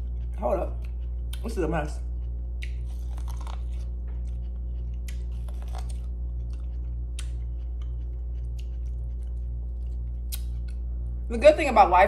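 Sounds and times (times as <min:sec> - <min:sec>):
steady low hum: 0:00.0 - 0:12.0
corn being bitten and chewed: 0:02.2 - 0:10.9.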